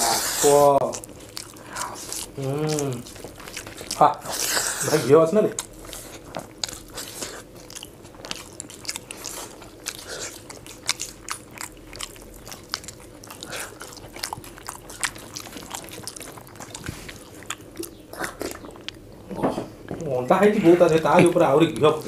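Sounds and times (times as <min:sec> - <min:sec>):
people chewing: 0:00.0 - 0:22.0.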